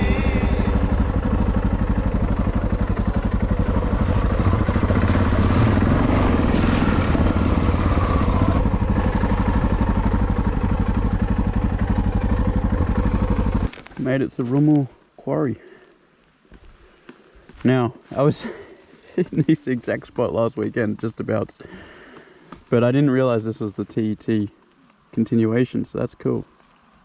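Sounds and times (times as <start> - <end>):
motorcycle engine running: 0.0 - 13.7.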